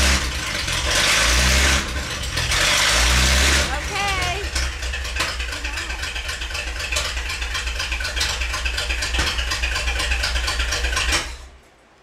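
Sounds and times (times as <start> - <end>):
car engine idling: 0.0 - 11.6.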